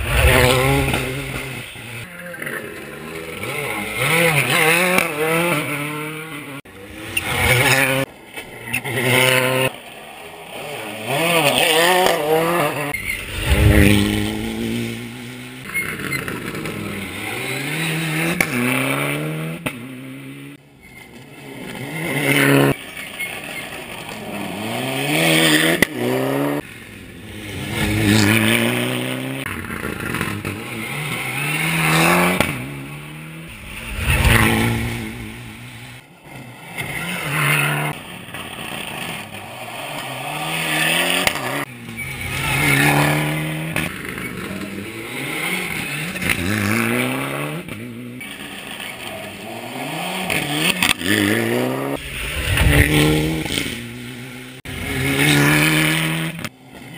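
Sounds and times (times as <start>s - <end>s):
rally car engine revving: 0.0s - 26.6s, 27.2s - 56.9s.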